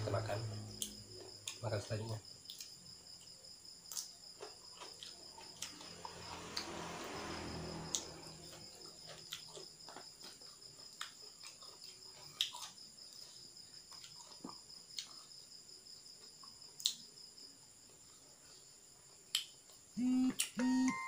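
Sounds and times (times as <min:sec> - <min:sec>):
crickets chirping: 0:00.0 - 0:21.0
chewing clicks: 0:02.4 - 0:02.8, 0:03.9 - 0:05.8, 0:08.5 - 0:15.3, 0:16.4 - 0:17.0, 0:19.3 - 0:19.8.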